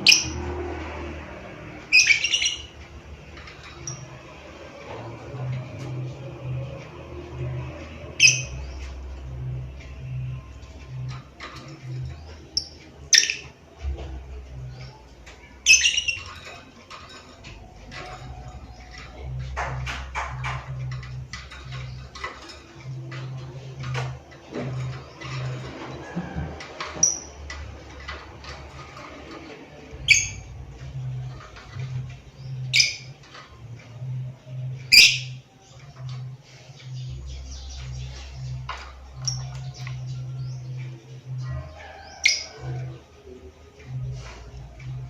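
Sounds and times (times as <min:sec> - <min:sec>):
bird chirping shrilly: 0:01.9 - 0:02.7, 0:35.0 - 0:35.4
lovebird chirps and squawks: 0:01.9 - 0:02.7, 0:08.2 - 0:08.6, 0:12.6 - 0:13.5, 0:15.6 - 0:16.4, 0:30.1 - 0:30.5, 0:32.7 - 0:33.1, 0:34.9 - 0:35.4.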